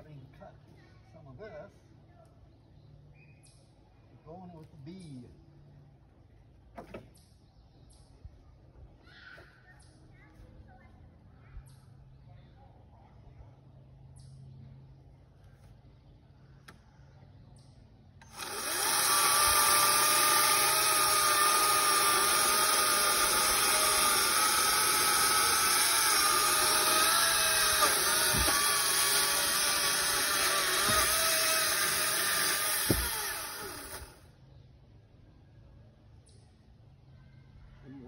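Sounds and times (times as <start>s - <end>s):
electric chainsaw cutting wood: 18.2s - 34.3s
dull knocks: 32.7s - 33.4s.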